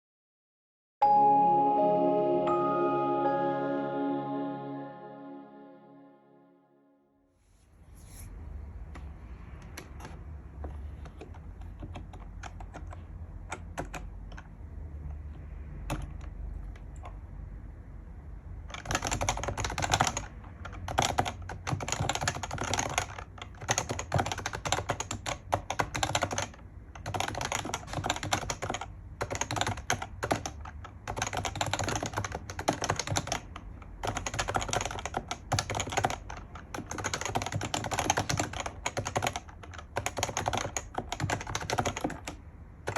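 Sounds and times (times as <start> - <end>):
keyboard typing: 11.0 - 14.5, 18.7 - 42.9.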